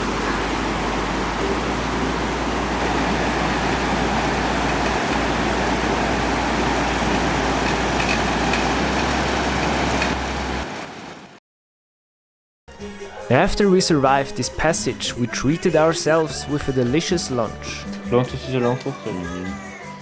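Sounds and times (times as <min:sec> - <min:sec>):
river rushing: 0:00.0 - 0:11.4.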